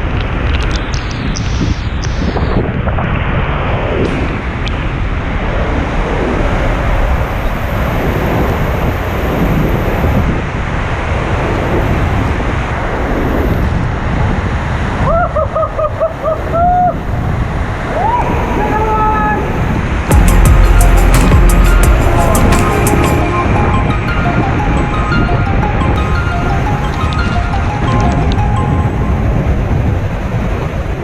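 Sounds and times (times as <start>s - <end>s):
wind buffeting microphone: 0.0s - 31.0s
waterfall roaring: 15.6s - 31.0s
short high-pitched notes: 20.1s - 29.8s.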